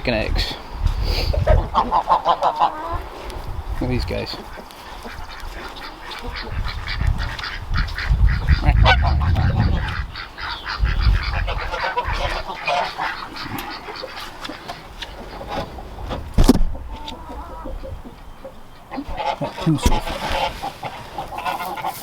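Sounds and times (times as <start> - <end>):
ducks quacking: 0.0 - 22.0
geese honking: 1.3 - 22.0
low rumble: 6.6 - 12.3.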